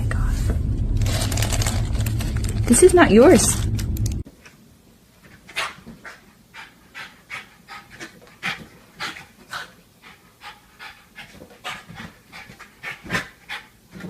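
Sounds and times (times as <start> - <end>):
dog panting: 5.2 - 14.0.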